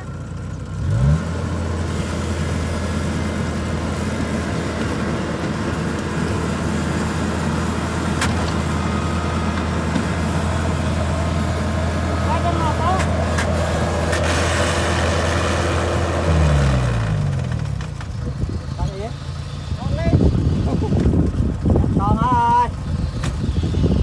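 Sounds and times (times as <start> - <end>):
diesel engine revving: 0.0 - 24.0.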